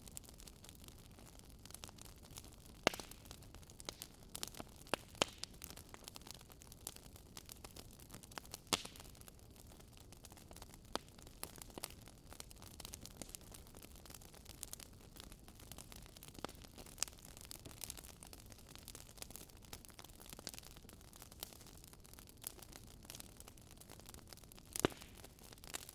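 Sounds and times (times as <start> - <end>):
fire crackling: 0.0 - 25.9.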